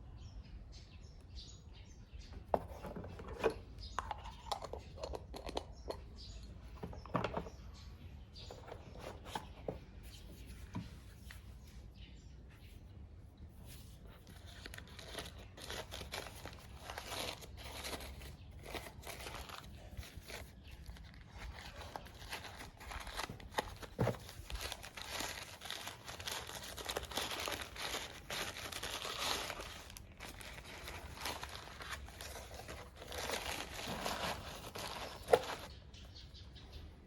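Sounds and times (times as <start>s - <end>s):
packaging crinkling and rustling: 14.2s - 35.8s.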